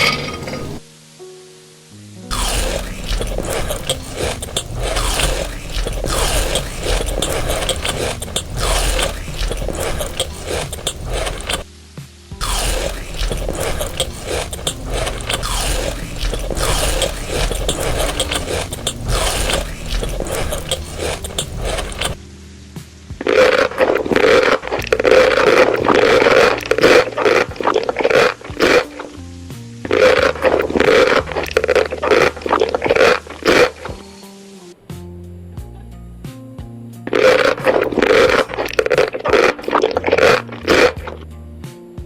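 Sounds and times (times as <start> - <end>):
background music: 0.0 - 42.0
chewing and crunching food: 2.3 - 11.7, 12.4 - 22.3, 23.1 - 34.2, 37.1 - 41.2.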